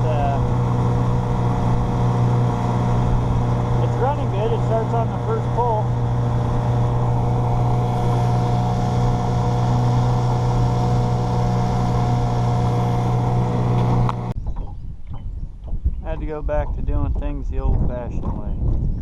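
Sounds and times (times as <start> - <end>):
man talking: 0.0 - 0.5, 3.8 - 5.9, 16.0 - 18.6
outboard motor running: 0.0 - 19.0.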